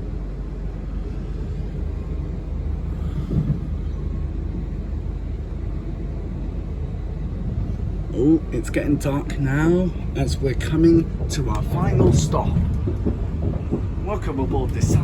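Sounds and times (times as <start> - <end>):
train rolling on track: 0.0 - 15.0.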